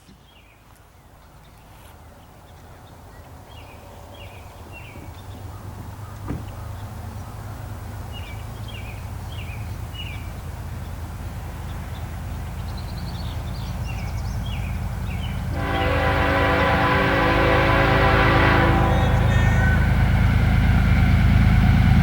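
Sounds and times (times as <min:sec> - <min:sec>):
birds chirping: 0:00.0 - 0:20.0
diesel locomotive rumble: 0:01.0 - 0:22.0
locomotive air horn: 0:15.5 - 0:20.4.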